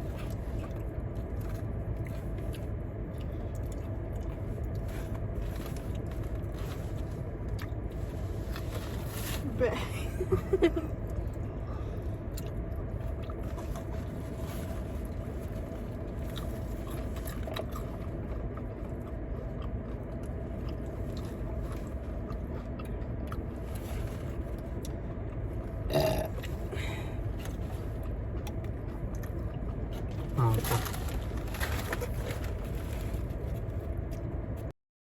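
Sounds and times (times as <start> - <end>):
people chewing fried chicken: 0.0 - 34.7
steady low rumble: 0.0 - 34.7
faint crunches and clicks: 27.4 - 34.7.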